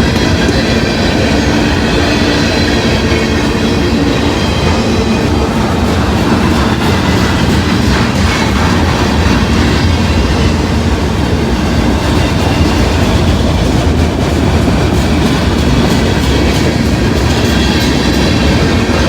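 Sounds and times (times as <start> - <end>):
freight train rumbling past: 0.0 - 19.0.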